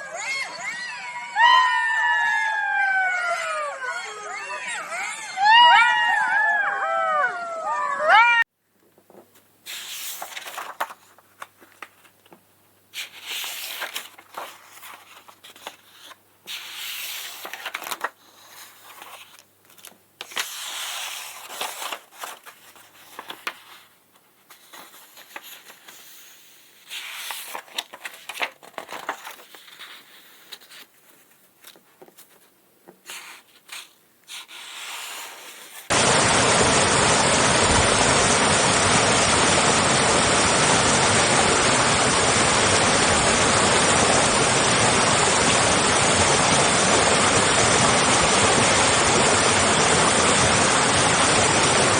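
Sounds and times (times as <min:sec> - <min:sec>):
rustling and scraping: 0:13.0 - 0:35.9
loud steady rushing noise: 0:35.9 - 0:51.9.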